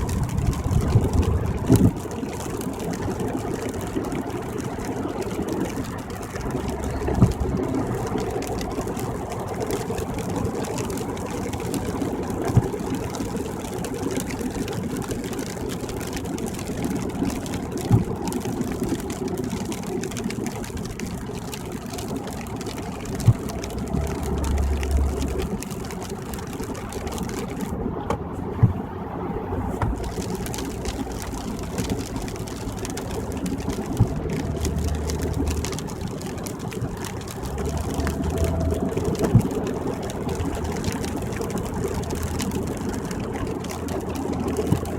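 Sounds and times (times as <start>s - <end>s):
car engine hum: 0.0s - 44.9s
tyre noise on wet road: 0.0s - 44.9s.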